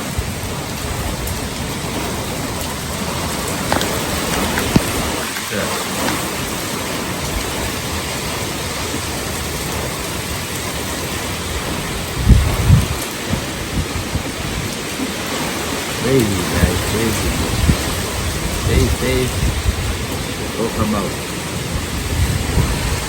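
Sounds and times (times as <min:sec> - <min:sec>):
heavy rain hissing: 0:00.0 - 0:23.0.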